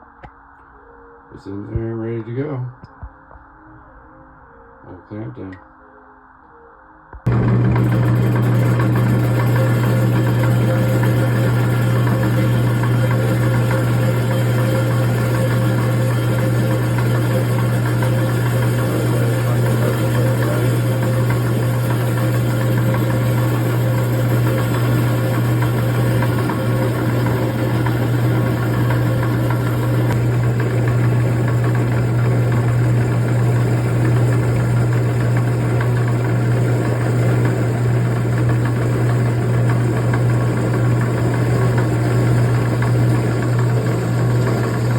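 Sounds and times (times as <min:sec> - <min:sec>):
low motor hum: 0:07.1 - 0:44.9
rock saw cutting stone: 0:07.3 - 0:32.3.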